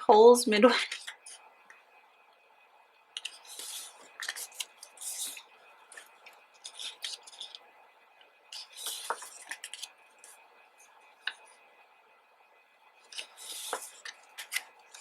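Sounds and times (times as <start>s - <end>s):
book pages turning: 3.2s - 7.6s, 8.6s - 10.4s, 13.1s - 15.0s.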